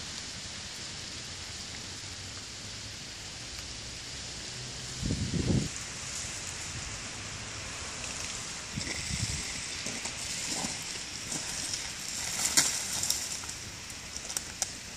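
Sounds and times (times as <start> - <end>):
water pattering on ice: 7.5 - 14.9.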